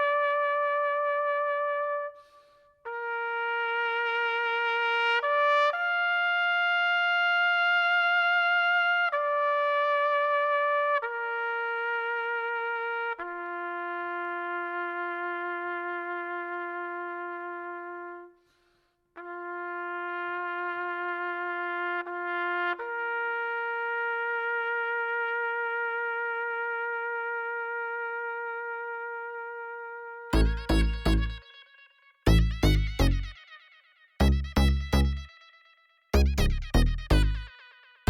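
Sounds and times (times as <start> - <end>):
trumpet-like held notes: 0.0 - 0.2, 28.7 - 38.0.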